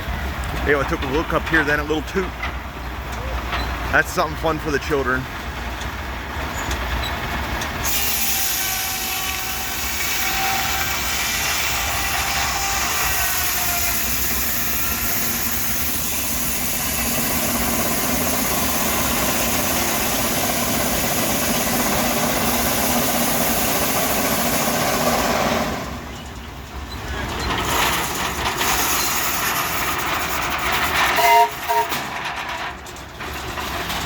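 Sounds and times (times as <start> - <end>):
steam engine hissing: 6.5 - 32.6.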